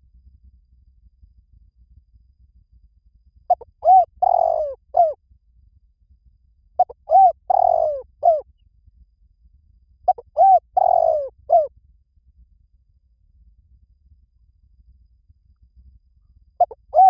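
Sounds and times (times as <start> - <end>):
dove cooing: 3.5 - 5.2, 6.8 - 8.4, 10.1 - 11.7, 16.6 - 17.0.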